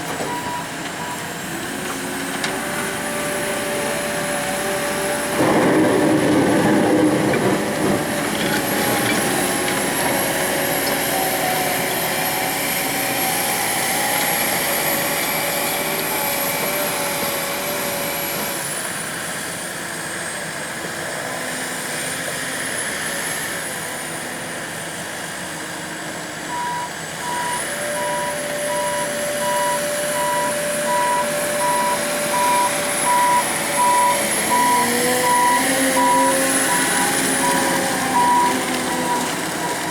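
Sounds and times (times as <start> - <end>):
reversing alarm beeping: 0.3 - 1.3, 26.5 - 39.9
truck engine running: 26.5 - 39.9.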